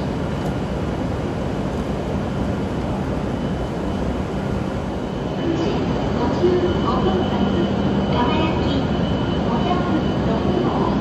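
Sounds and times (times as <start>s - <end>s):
train rushing hum: 0.0s - 11.0s
faint steady high tone: 5.0s - 11.0s.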